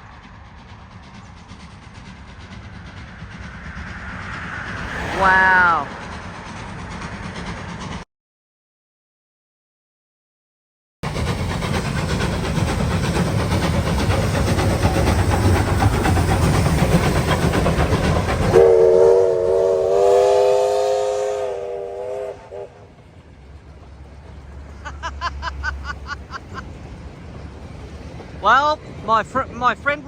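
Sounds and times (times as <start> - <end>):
steam locomotive rumbling past: 0.0 - 8.1, 11.0 - 30.0
steam whistle chord: 18.5 - 22.8.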